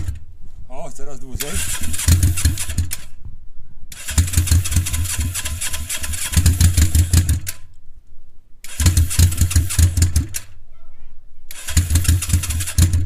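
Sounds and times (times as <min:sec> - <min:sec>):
motorcycle engine starting unevenly: 0:00.0 - 0:00.2, 0:01.4 - 0:03.1, 0:03.9 - 0:07.7, 0:08.6 - 0:10.5, 0:11.5 - 0:13.0.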